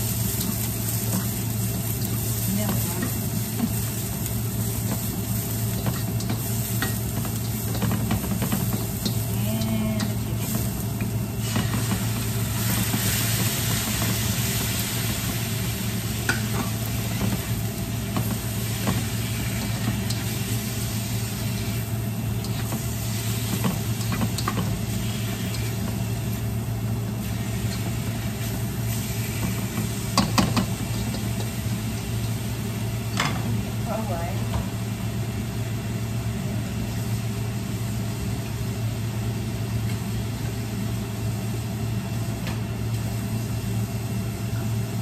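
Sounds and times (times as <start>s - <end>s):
food sizzling in a wok: 0.0s - 45.0s
steady low hum: 0.0s - 45.0s
utensils scraping and tapping pan: 5.7s - 12.0s, 23.4s - 26.0s, 29.4s - 31.6s.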